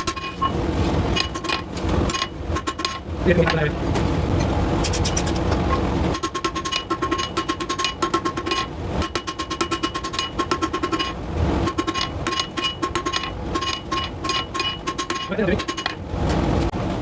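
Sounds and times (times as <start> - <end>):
hammer striking steel on anvil: 6.2 - 16.0.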